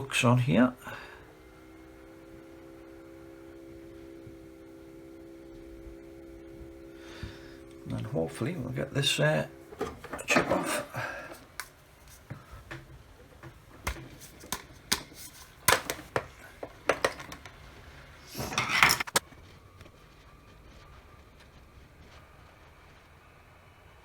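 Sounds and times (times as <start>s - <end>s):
faint steady whir: 0.0s - 24.0s
tools clicking on a workbench: 9.8s - 17.6s, 18.3s - 19.2s.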